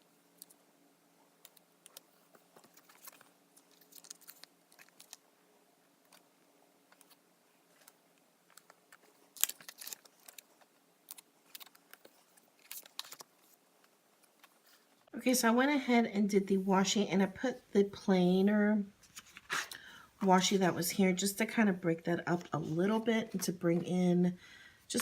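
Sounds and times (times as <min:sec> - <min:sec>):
tape and paper crinkling: 0:01.4 - 0:05.2, 0:06.9 - 0:15.1, 0:19.0 - 0:19.9.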